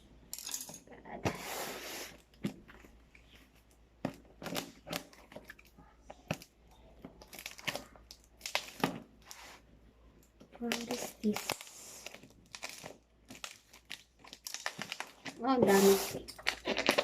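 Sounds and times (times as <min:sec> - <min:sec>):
packaging tearing and crinkling: 0:07.2 - 0:09.0, 0:10.6 - 0:17.0.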